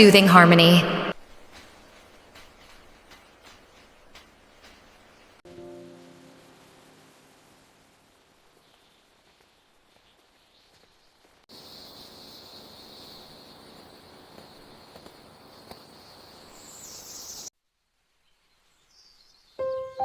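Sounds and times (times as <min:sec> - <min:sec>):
insect-like buzzing hiss: 0:01.1 - 0:17.5
faint chirps: 0:11.5 - 0:17.5.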